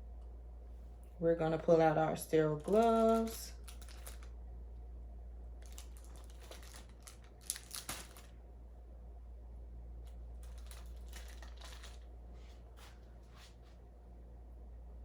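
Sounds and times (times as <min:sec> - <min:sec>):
low steady hum: 0:00.0 - 0:15.0
packaging rustling and crinkling: 0:02.6 - 0:04.4, 0:05.6 - 0:08.4, 0:10.1 - 0:12.1.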